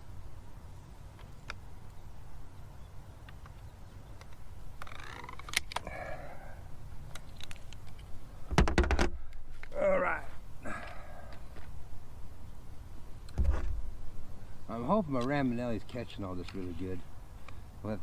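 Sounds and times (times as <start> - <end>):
light handling clicks: 3.2 - 5.9, 7.1 - 8.2, 15.1 - 17.6
heavy thump: 8.5 - 9.2, 13.4 - 14.0.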